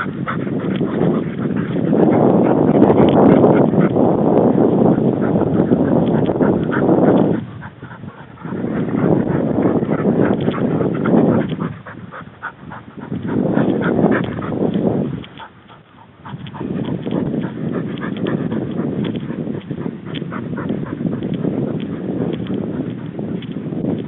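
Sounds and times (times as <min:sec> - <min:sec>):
dog making noises: 0:00.0 - 0:24.0
small clicks and rustles: 0:13.1 - 0:24.0.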